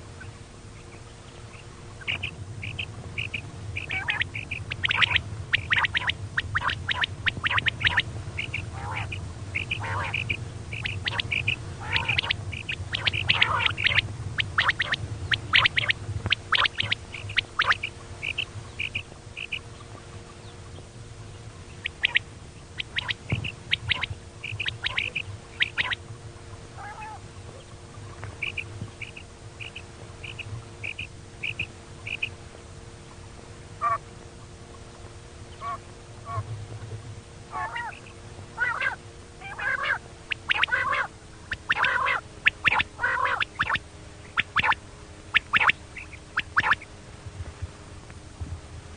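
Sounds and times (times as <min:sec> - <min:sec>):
steady low hum: 0:00.0 - 0:48.9
quail calling sharp high notes: 0:02.0 - 0:19.6, 0:22.8 - 0:26.0, 0:26.8 - 0:27.2, 0:33.8 - 0:34.0, 0:35.6 - 0:36.5, 0:37.5 - 0:46.9.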